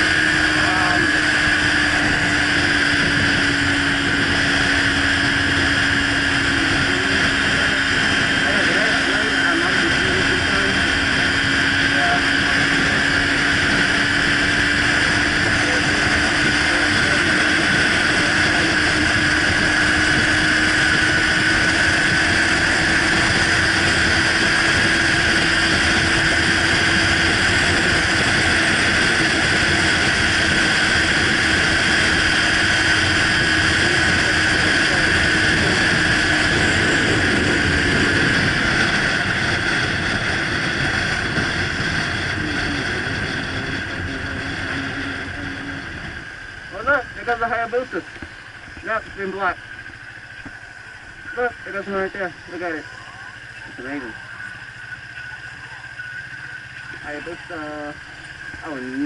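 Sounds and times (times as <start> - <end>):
motorcycle engine drone: 0.0 - 59.0
wind rush on microphone: 0.0 - 59.0.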